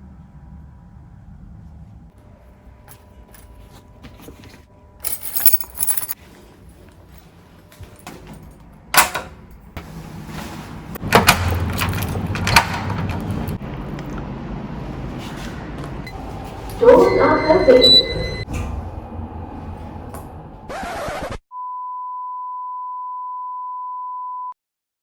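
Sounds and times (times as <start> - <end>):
train rumbling and clattering: 9.7 - 20.7.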